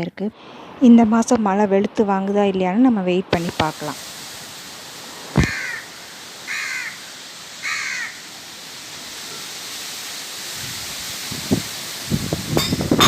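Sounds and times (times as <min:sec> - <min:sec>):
light drizzle hiss: 0:00.0 - 0:13.0
crow cawing: 0:05.4 - 0:08.3.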